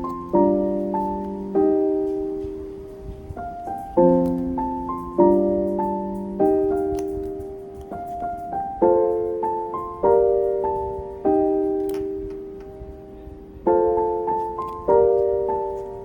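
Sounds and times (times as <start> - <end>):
soft piano music: 0.0 - 16.0.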